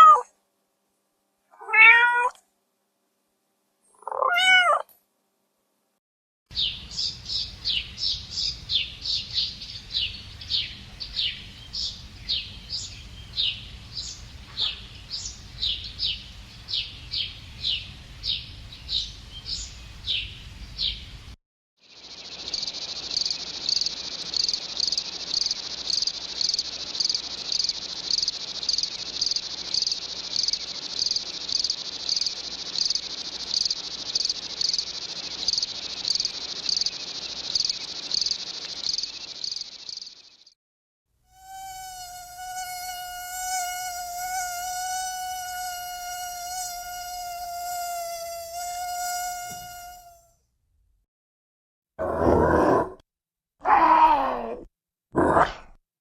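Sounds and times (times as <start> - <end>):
bird chirping: 6.5 - 21.2, 21.8 - 40.5
crickets trilling: 21.8 - 40.4.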